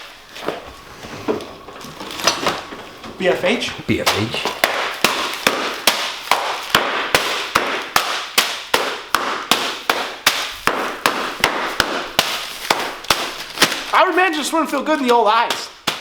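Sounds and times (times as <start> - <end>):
hammer striking dry ice: 4.0 - 14.3, 15.1 - 16.0.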